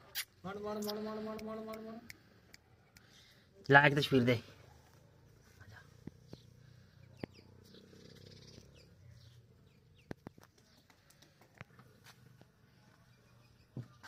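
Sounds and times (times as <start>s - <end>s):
faint bird chirps: 4.6s - 14.0s.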